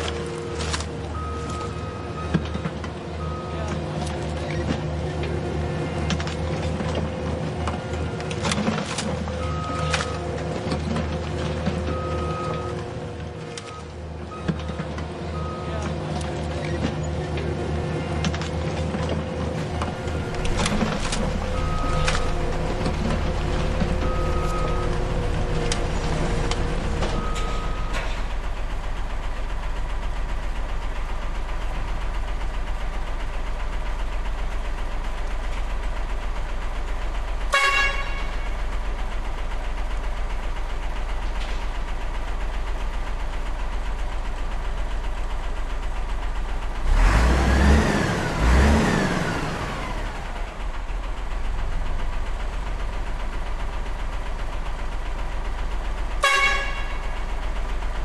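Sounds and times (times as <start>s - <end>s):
model truck engine running: 15.4s - 37.6s
horn toot: 56.2s - 57.1s.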